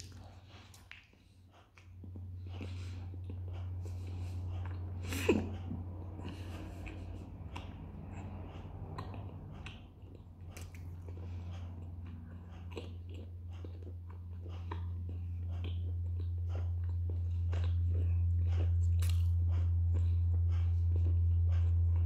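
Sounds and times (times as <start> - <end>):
low hum: 0.0 - 22.0
person chewing: 0.0 - 22.0
wet mouth clicks and smacks: 8.9 - 11.2, 18.8 - 19.4.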